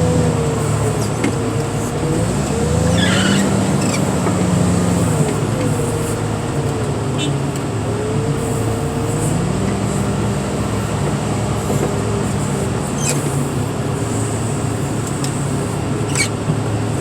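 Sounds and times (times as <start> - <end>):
heavy equipment engine running: 0.0 - 17.0.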